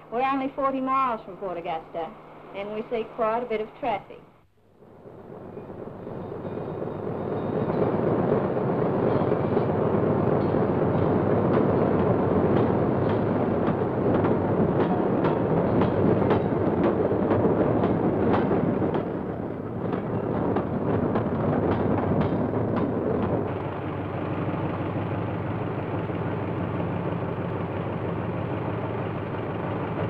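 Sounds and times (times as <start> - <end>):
freight train rumble: 4.8 - 30.0
wheels clacking over rail joints: 5.4 - 30.0.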